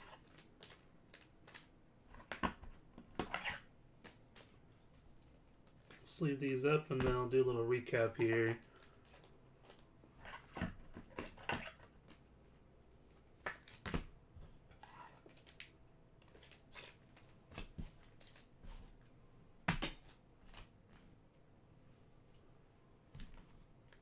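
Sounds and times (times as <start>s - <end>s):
cards rustling and clicking: 0.0s - 6.1s, 7.9s - 12.3s, 13.0s - 14.1s, 14.8s - 19.1s.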